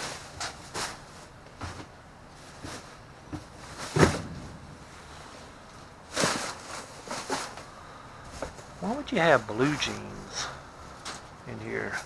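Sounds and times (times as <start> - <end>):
rustling scrapes: 0.0 - 8.8
knocks in a dumpster: 3.9 - 5.2.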